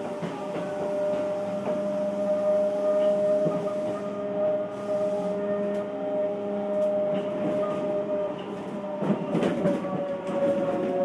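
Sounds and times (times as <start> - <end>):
rail-joint clacks: 0.0 - 2.0, 6.7 - 11.0
train wheel rumble: 0.0 - 11.0.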